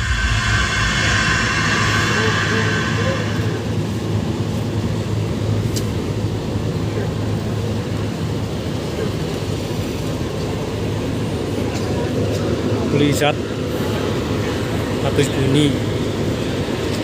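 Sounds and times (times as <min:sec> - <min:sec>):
distant heavy bass music: 0:00.0 - 0:04.6
street noise: 0:00.0 - 0:17.0.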